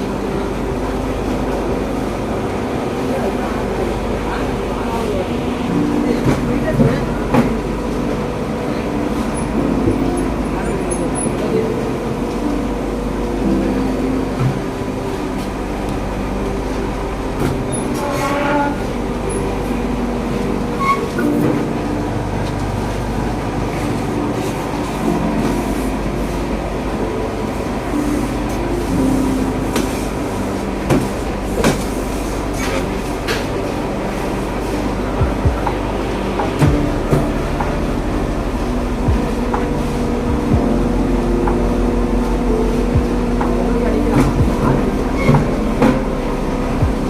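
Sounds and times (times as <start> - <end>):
mechanical rumble: 0.0 - 47.0.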